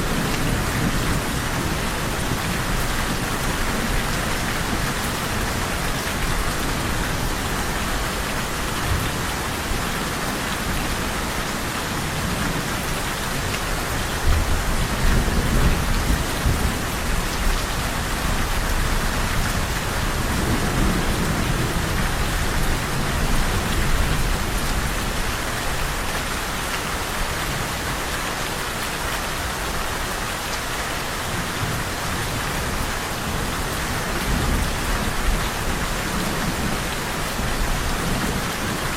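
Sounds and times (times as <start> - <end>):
heavy rain falling: 0.0 - 38.9
thunder rumbling: 14.2 - 25.3.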